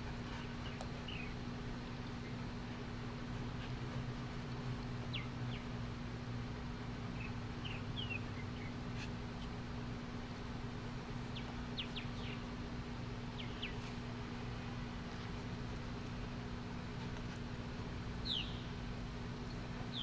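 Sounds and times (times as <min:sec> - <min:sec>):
steady low hum: 0:00.0 - 0:20.0
birds chirping: 0:00.2 - 0:02.9, 0:04.5 - 0:05.8, 0:07.1 - 0:09.6, 0:11.2 - 0:14.4, 0:18.2 - 0:20.0.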